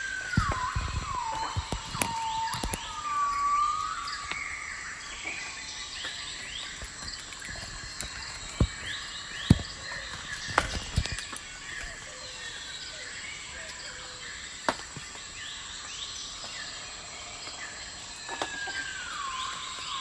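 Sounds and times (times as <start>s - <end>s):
whistled bird glides: 0.0s - 14.2s
small birds chirping: 0.0s - 20.0s.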